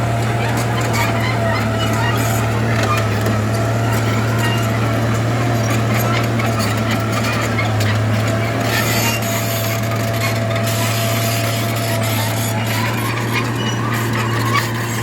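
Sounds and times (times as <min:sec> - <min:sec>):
diesel earthmover engine hum: 0:00.0 - 0:15.0.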